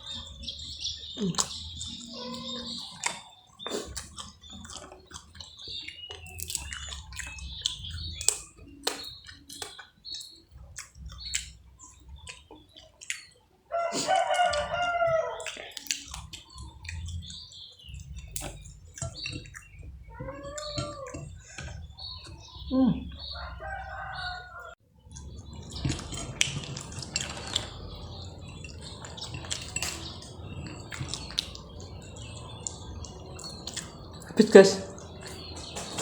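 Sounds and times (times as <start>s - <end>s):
chewing with mouth clicks: 0.0s - 24.3s, 25.1s - 35.8s
rooster crowing: 13.7s - 15.4s, 23.3s - 24.8s.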